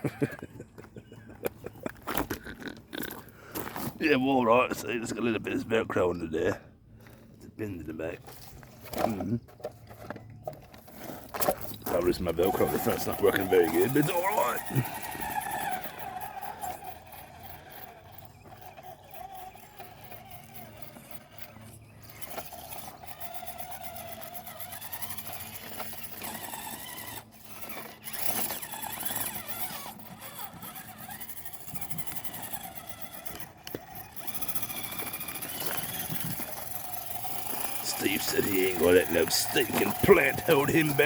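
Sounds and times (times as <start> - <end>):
electric motor whining: 8.3 - 41.0.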